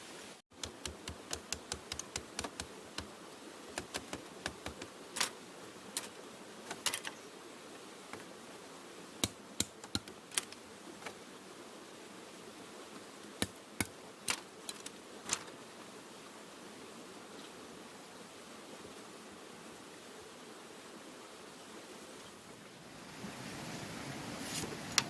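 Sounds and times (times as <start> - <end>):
steady hiss: 0.0 - 25.0
light taps and clicks: 0.6 - 3.1.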